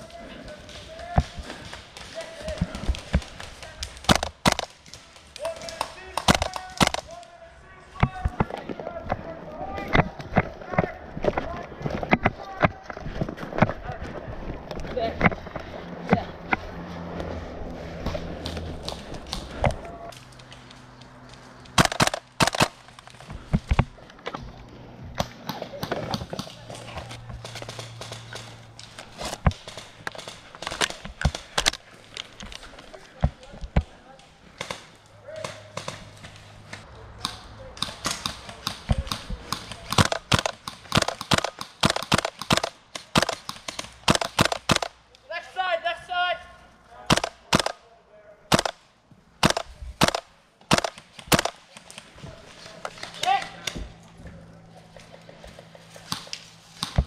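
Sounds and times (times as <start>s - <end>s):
footsteps crunching on dry ground: 10.0s - 21.7s
airsoft gunfire cracks: 21.8s - 22.8s, 47.1s - 47.8s, 48.5s - 48.8s, 49.4s - 51.6s.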